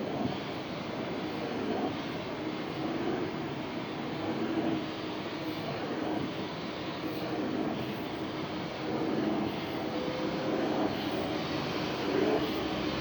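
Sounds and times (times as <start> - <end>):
vacuum cleaner running: 8.7 - 13.0.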